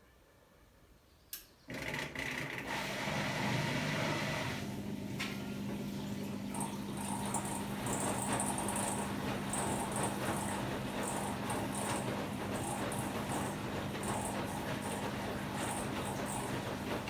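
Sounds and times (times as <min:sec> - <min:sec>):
low machine hum: 0:04.6 - 0:17.0.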